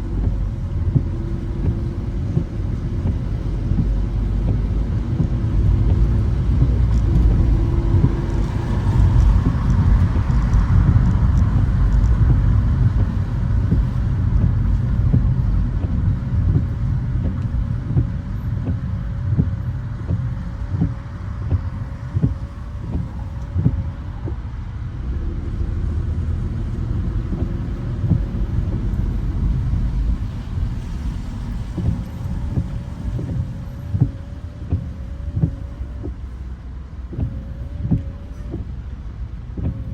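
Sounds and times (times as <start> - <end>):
road and tyre rumble: 0.0 - 39.9.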